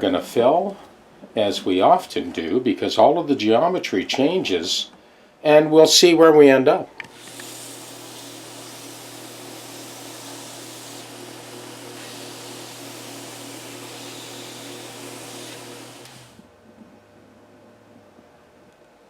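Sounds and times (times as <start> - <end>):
machine hissing and humming: 7.1 - 16.5.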